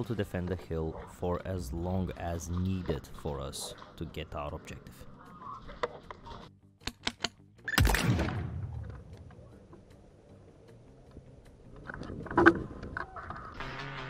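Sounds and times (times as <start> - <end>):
airsoft gun shots: 7.8 - 8.9.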